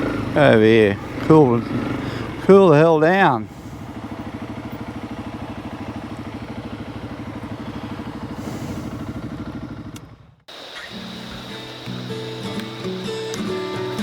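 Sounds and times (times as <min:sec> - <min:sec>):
motorcycle engine idling: 0:00.0 - 0:14.0
acoustic guitar music: 0:10.8 - 0:14.0.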